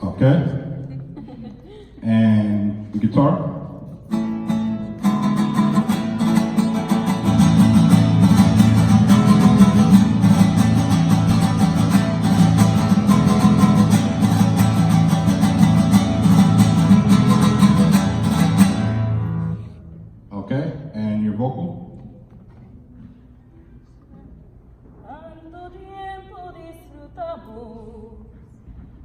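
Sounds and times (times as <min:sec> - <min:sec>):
guitar strummed through a pa: 0:04.1 - 0:20.0.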